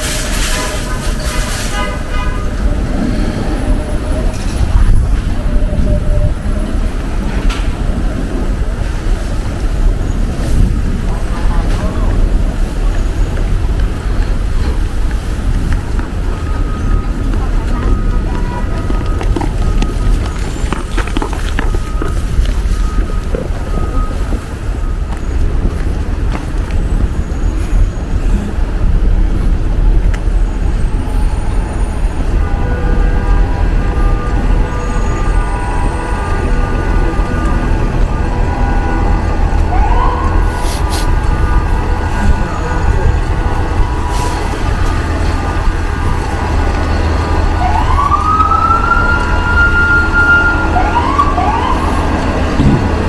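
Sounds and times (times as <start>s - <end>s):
street traffic rumble: 0.0s - 53.0s
vehicle motor whine: 12.2s - 53.0s.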